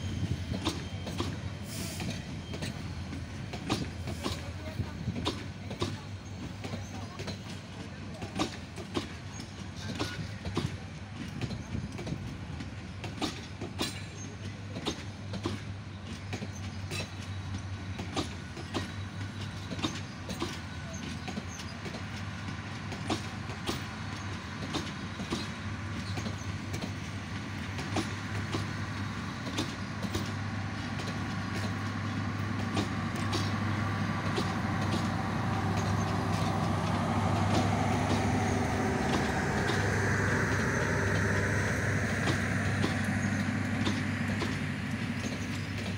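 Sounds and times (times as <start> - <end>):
train wheels clicking over rail joints: 0.0 - 45.9
steady low hum: 28.7 - 45.9.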